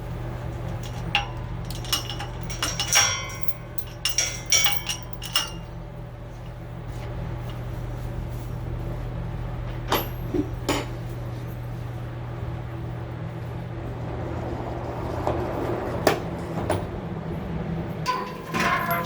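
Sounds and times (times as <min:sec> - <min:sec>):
ventilation fan humming: 0:00.0 - 0:19.0.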